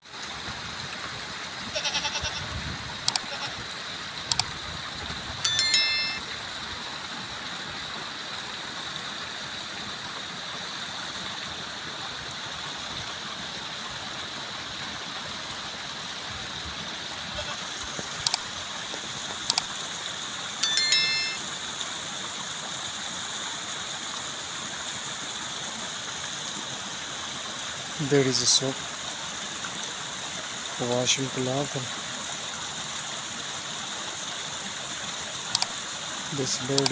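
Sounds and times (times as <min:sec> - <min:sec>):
rapid bleat-like call: 0:01.7 - 0:02.5, 0:03.2 - 0:03.6, 0:17.4 - 0:17.7
bell-like chime: 0:05.5 - 0:06.3, 0:20.6 - 0:21.5.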